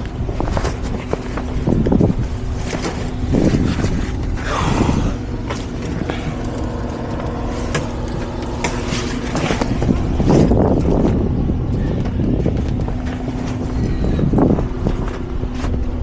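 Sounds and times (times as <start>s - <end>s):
truck engine idling: 0.0s - 16.0s
wind buffeting microphone: 0.0s - 16.0s
knocks and scrapes: 5.5s - 16.0s.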